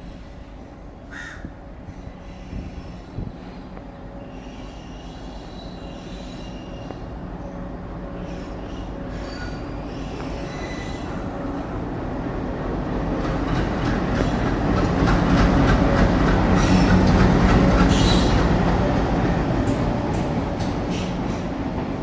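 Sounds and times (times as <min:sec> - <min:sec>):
train rumbling: 0:00.0 - 0:22.0
wheel squeal: 0:08.2 - 0:11.3
train wheels clicking: 0:12.9 - 0:22.0.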